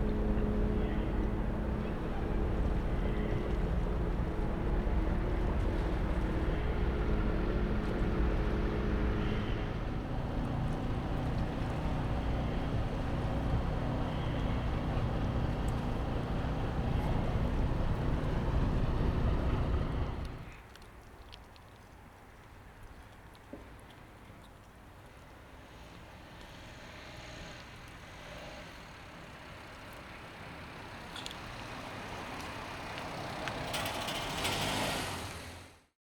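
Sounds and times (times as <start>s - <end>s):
boat engine humming: 0.0s - 20.6s.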